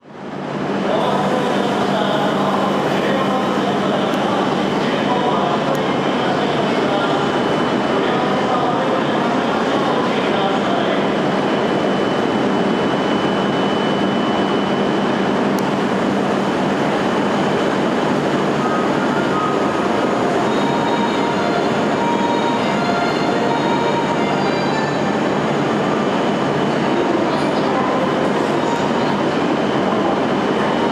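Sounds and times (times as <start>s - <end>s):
train running noise: 0.0s - 30.9s
high train squeals: 17.6s - 30.9s.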